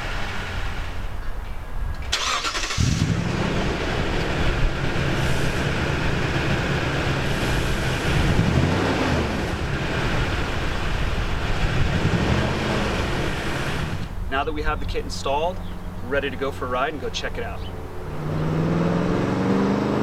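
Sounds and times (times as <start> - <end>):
engine starting: 2.0 - 3.4
engine idling: 2.0 - 18.2.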